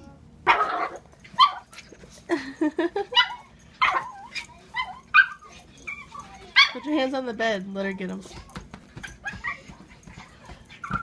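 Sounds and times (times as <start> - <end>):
puppy yipping and barking: 0.5 - 1.7, 3.1 - 6.8, 10.8 - 11.0.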